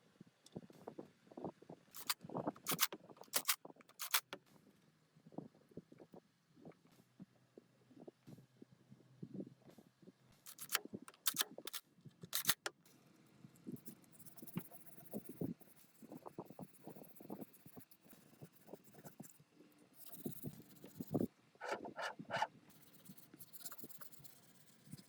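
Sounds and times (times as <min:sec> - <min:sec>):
sharp clicks and taps: 0:02.0 - 0:04.4, 0:10.5 - 0:12.7.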